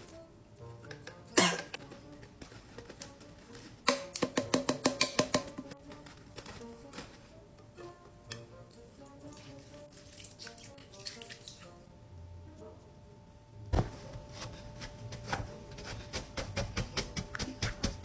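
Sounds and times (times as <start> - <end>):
clicks and taps: 3.9 - 5.7.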